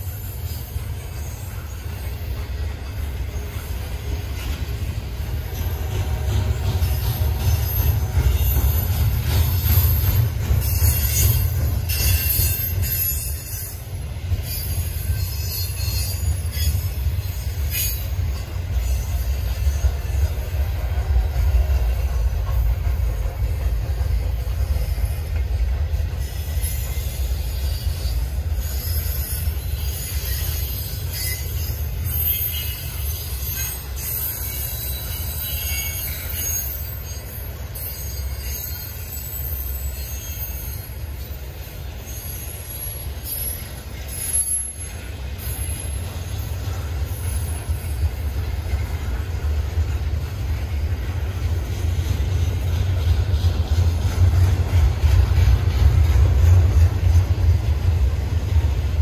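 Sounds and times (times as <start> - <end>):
high-pitched wheel squeal: 5.2 - 22.3, 24.1 - 48.0.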